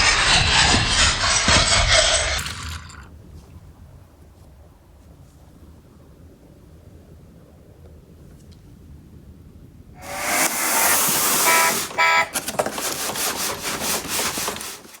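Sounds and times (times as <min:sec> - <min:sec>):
electronic beeping tones: 0:10.0 - 0:12.4
toy truck loud hiss: 0:10.0 - 0:13.5.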